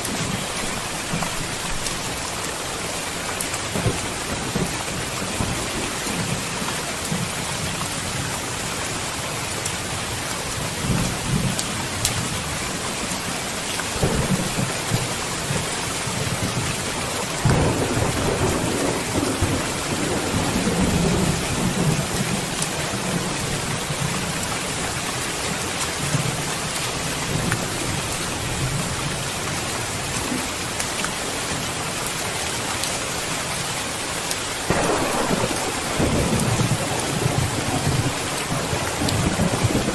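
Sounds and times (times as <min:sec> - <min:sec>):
heavy rain: 0:00.0 - 0:39.9
thunder rolling: 0:14.0 - 0:16.7, 0:17.4 - 0:23.8, 0:34.7 - 0:39.9.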